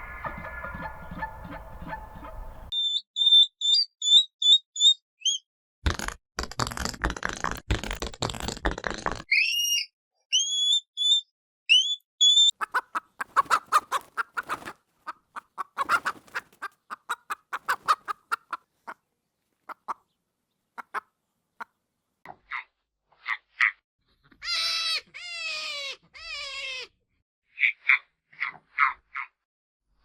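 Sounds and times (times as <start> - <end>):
short clucking bird notes: 0.0 - 5.4
short rising bird chirps: 2.2 - 5.5, 9.3 - 12.6.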